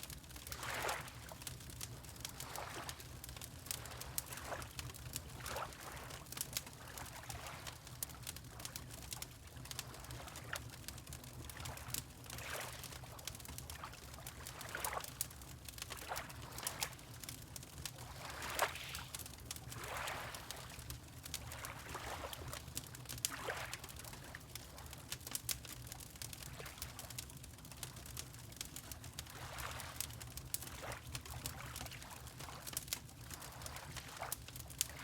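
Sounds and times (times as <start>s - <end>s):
fireplace crackling: 0.0s - 31.5s, 32.1s - 35.0s
water lapping: 0.3s - 9.0s, 11.5s - 15.2s, 15.8s - 24.4s, 29.3s - 35.0s.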